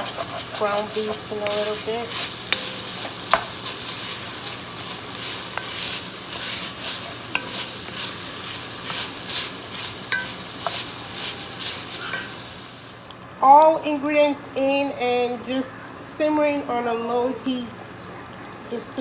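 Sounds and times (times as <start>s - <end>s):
utensil scraping pan: 0.0s - 13.0s
sausage sizzling in a pan: 0.0s - 13.2s
utensil clicking against pan: 0.0s - 13.2s.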